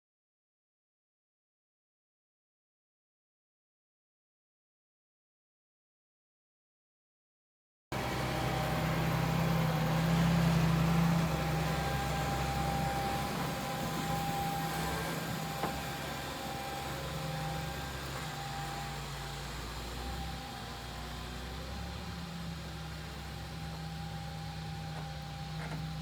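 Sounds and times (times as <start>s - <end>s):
tractor engine running: 7.9s - 26.0s.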